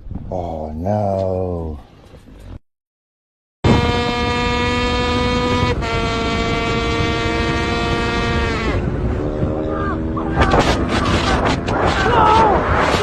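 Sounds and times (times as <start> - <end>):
two-stroke motorcycle engine revving: 3.7 - 11.8.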